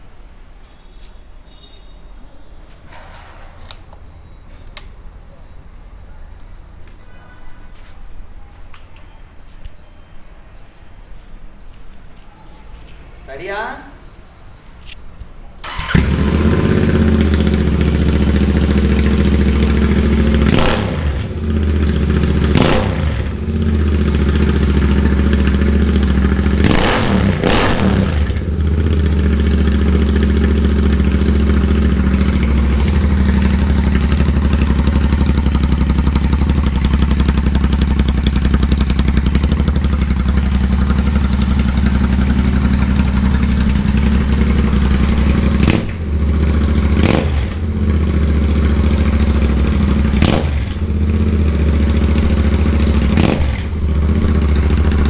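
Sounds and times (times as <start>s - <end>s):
motorcycle engine revving: 15.6s - 55.0s
motorcycle engine idling loud: 15.7s - 55.0s.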